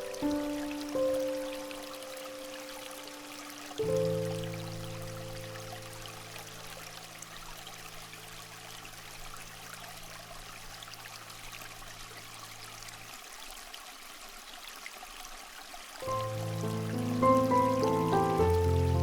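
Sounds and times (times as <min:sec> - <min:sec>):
steady hiss: 0:00.0 - 0:11.4, 0:16.0 - 0:19.0.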